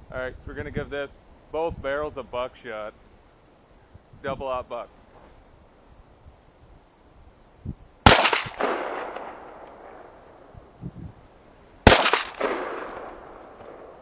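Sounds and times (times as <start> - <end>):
shotgun shots: 8.0 - 10.2, 11.8 - 14.0.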